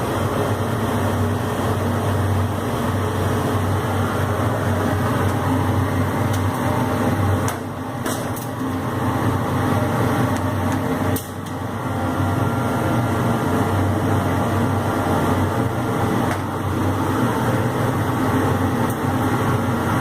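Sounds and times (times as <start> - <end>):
laser cutter fan hum: 0.0 - 20.0.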